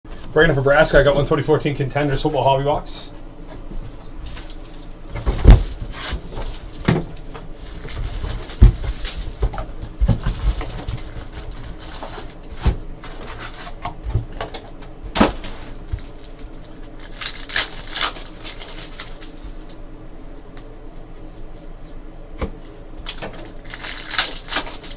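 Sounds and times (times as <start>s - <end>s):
pack wrappers crinkling: 7.7s - 9.4s, 10.1s - 13.9s, 14.6s - 19.8s, 23.1s - 24.9s.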